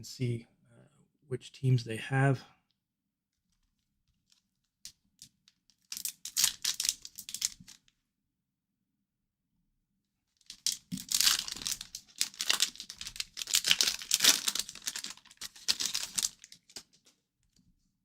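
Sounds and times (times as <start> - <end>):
wrapper being torn and crinkled: 5.7 - 7.8, 10.4 - 17.0.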